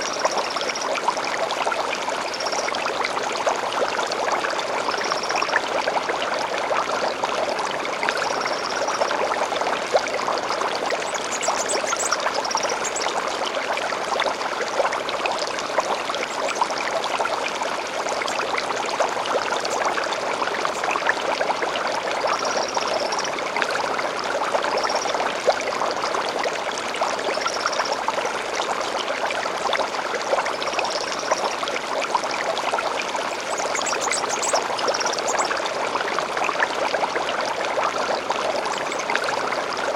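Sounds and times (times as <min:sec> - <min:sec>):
stream babbling: 0:00.0 - 0:39.9
bird chirps and trills: 0:11.1 - 0:13.1.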